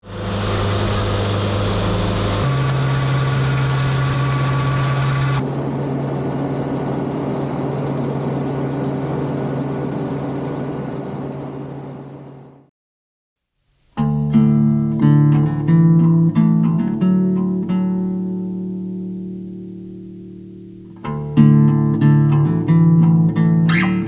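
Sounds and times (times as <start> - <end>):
engines running: 0.0 - 11.6.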